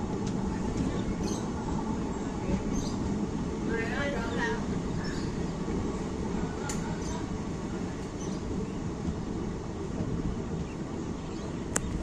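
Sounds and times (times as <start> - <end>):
train rumble inside coach: 0.0 - 12.0
faint click: 6.6 - 6.9, 11.7 - 12.0.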